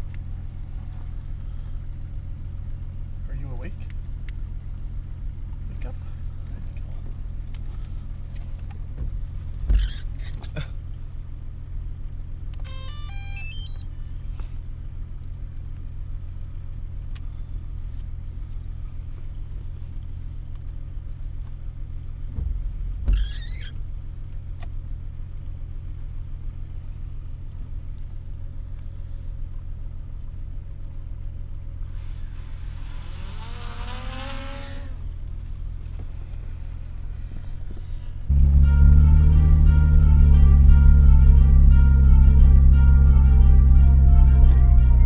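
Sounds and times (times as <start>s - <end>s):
truck engine droning inside cab: 0.0s - 45.0s
knock with squeak: 9.0s - 10.1s, 22.4s - 23.8s
high whine falling in pitch: 12.7s - 14.2s, 36.0s - 45.0s.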